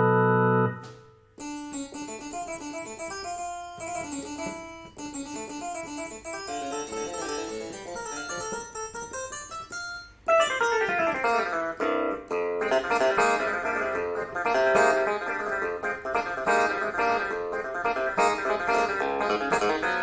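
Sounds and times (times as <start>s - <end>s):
keyboard playing quick note runs: 0.0s - 1.2s.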